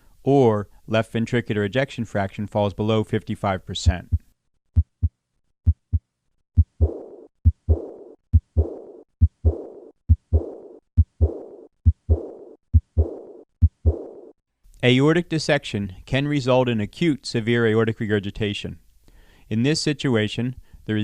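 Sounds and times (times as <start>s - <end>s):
soft heart murmur: 4.0s - 5.1s, 5.7s - 6.0s, 6.6s - 14.2s
heartbeat: 4.0s - 6.0s, 6.6s - 14.3s.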